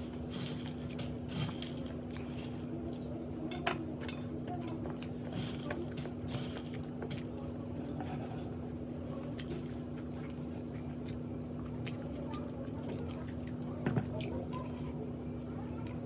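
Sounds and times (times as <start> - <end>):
steady low hum: 0.0 - 16.0
person chewing crunchy food: 8.6 - 14.3.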